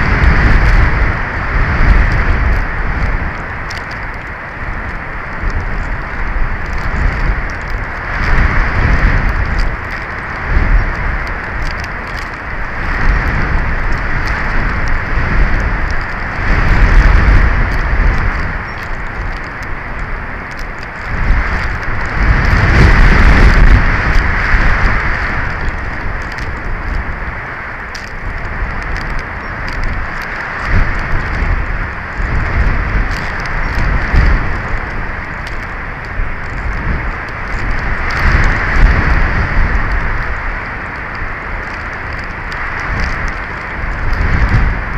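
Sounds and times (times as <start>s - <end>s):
faint small ticks: 0.0s - 44.9s
wind buffeting microphone: 0.0s - 44.9s.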